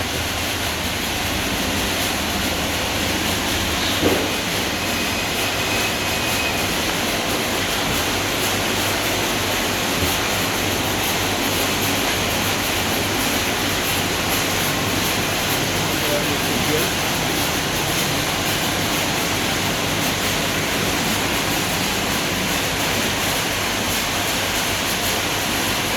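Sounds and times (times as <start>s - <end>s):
car wash brushes and water spray: 0.0s - 25.9s
brief knock: 3.9s - 4.4s.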